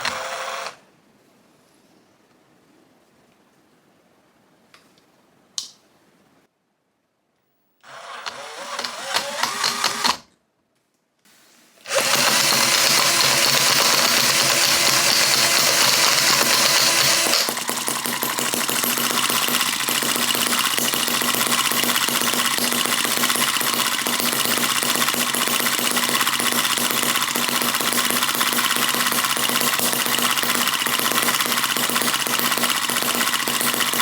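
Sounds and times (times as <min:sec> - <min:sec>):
small gasoline engine running: 0:11.9 - 0:34.0.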